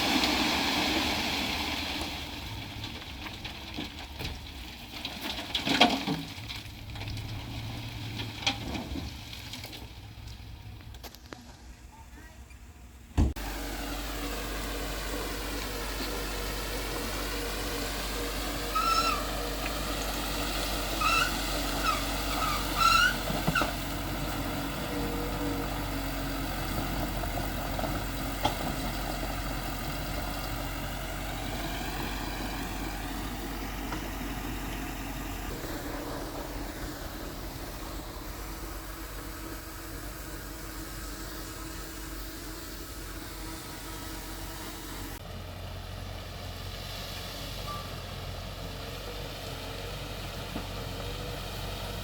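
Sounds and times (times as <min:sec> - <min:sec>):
bulldozer diesel engine running: 0:00.0 - 0:52.0
short high squeaks: 0:18.7 - 0:19.5, 0:21.0 - 0:23.7.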